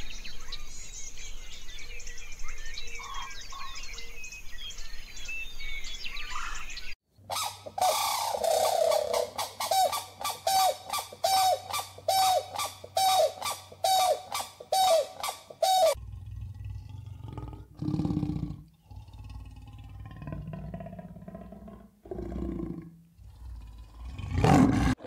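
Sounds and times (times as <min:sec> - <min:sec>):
crane honking calls: 0:07.3 - 0:16.0
leopard growling: 0:16.0 - 0:25.0.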